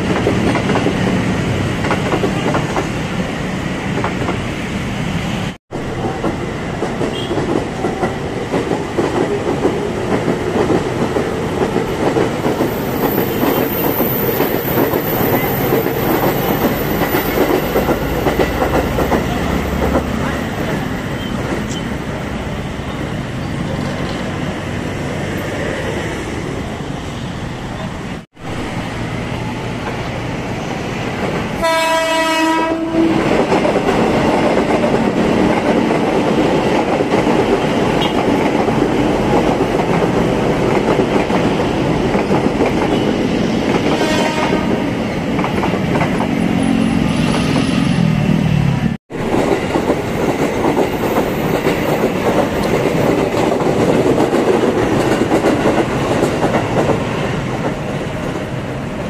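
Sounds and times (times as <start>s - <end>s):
train horn: 7.1s - 7.5s, 31.6s - 33.3s, 43.9s - 44.9s.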